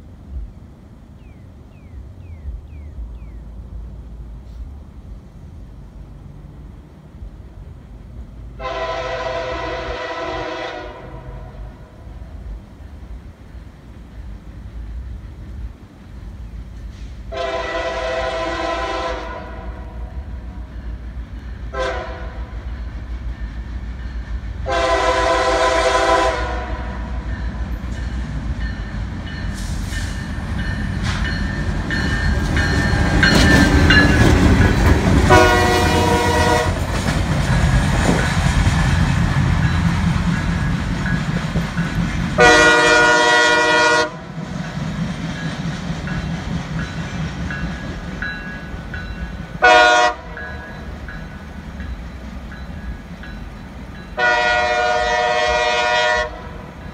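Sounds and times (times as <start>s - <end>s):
locomotive engine rumble: 0.0s - 56.9s
train air horn blasts: 8.6s - 12.0s, 16.9s - 20.2s, 21.7s - 22.7s, 24.6s - 27.3s, 35.2s - 36.8s, 42.4s - 44.4s, 49.6s - 50.7s, 54.2s - 56.7s
wheels clattering over rails: 27.5s - 42.5s.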